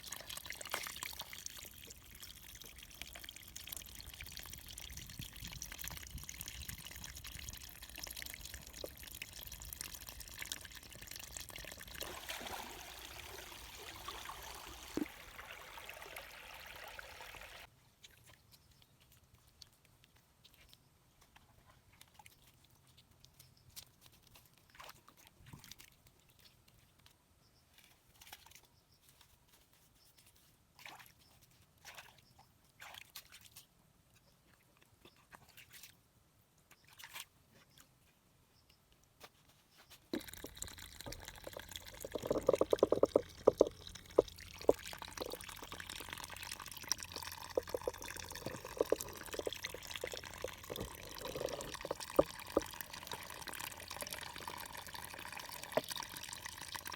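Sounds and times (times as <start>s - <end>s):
water dripping and splashing: 0.0s - 17.7s, 40.1s - 56.9s.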